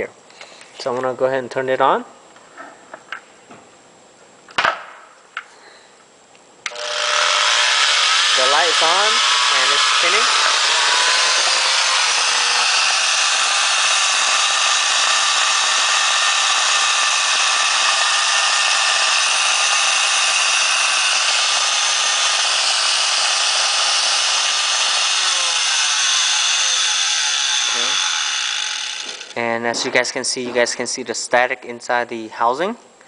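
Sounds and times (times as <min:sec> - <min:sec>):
router motor whining: 0:06.7 - 0:29.4.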